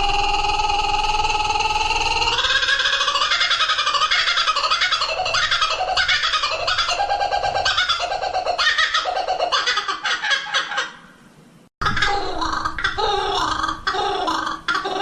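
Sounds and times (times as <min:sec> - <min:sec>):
songbirds singing: 0:01.6 - 0:10.8.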